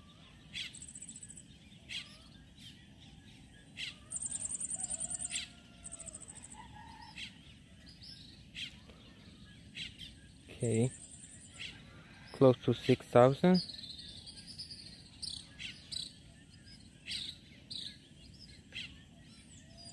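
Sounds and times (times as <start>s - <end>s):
high rapid bird trill: 0.0s - 2.8s
birds chirping: 0.0s - 19.9s.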